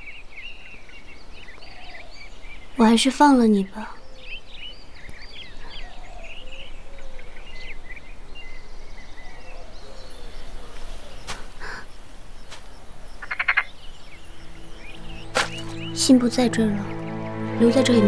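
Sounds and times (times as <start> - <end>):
birds chirping: 0.0 - 18.0
outdoor background hiss: 0.0 - 18.0
quick rattling bird call: 15.3 - 15.9.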